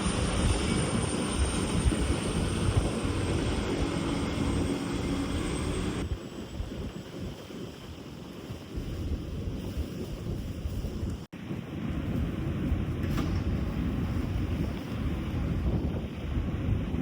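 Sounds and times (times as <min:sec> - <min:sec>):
ferry engine rumble: 0:00.0 - 0:06.1
water noise: 0:00.0 - 0:17.0
wind buffeting microphone: 0:00.0 - 0:17.0.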